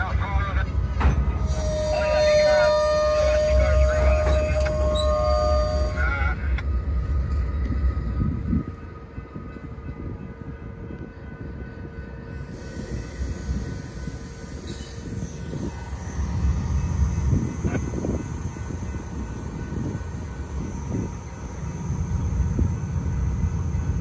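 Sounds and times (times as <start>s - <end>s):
steel wheels rumbling on rail: 0.0s - 24.0s
faint steady squeal: 1.0s - 24.0s.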